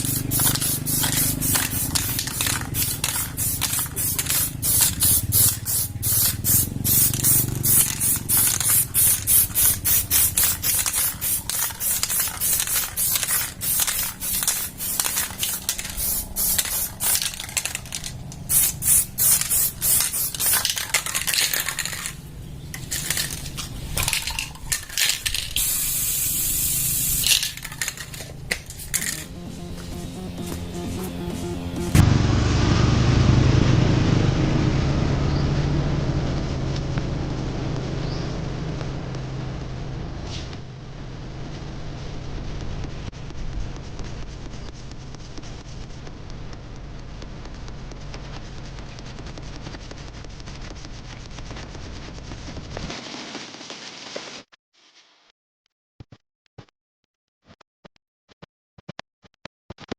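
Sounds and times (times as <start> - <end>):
spray paint can spraying: 0.0 - 32.0.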